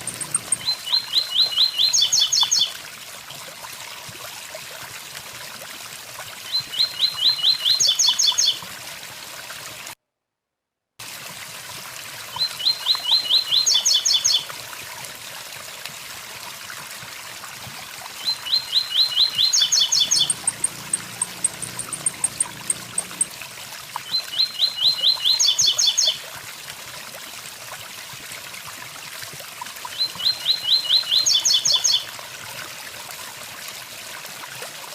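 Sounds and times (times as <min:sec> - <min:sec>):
bird singing with trill: 0:00.0 - 0:02.7, 0:18.2 - 0:23.3
waterfall rushing: 0:19.9 - 0:23.3.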